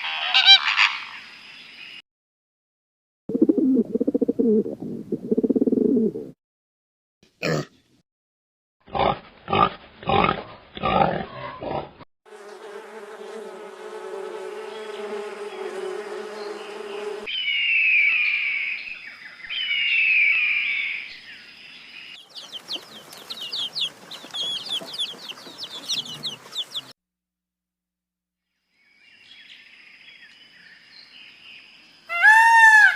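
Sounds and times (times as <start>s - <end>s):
loud falling bird calls: 21.9s - 26.9s
rapid bird chirping: 22.1s - 26.9s.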